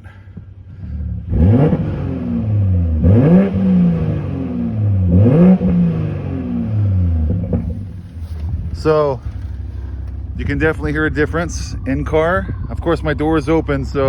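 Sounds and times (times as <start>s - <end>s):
car engine revving: 0.6s - 14.0s.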